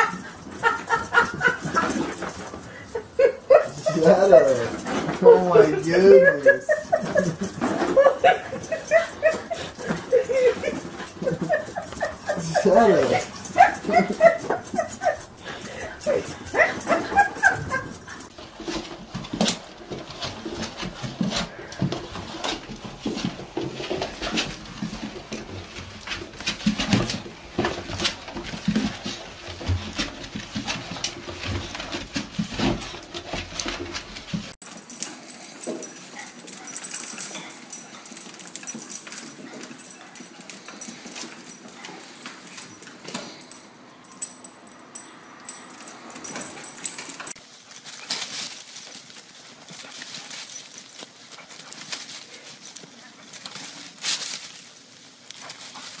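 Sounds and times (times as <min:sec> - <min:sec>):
dog making noises: 0:00.0 - 0:18.3.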